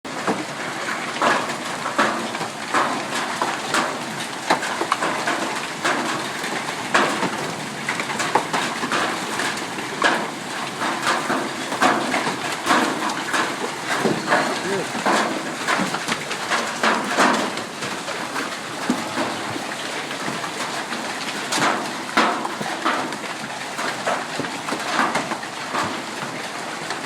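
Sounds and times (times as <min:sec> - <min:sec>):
hailstones striking hard surfaces: 0:00.1 - 0:27.0.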